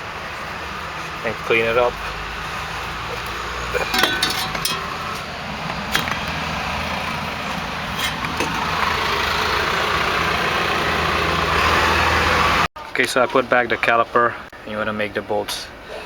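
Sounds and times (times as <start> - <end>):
metallic clinks of brake parts: 3.8 - 5.2.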